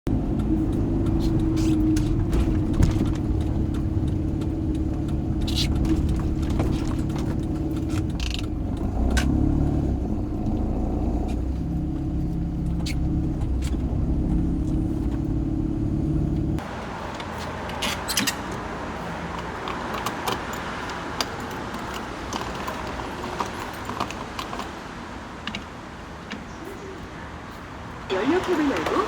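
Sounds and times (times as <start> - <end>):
outdoor noise: 0.0 - 29.0
car engine running: 0.1 - 16.8, 28.1 - 29.0.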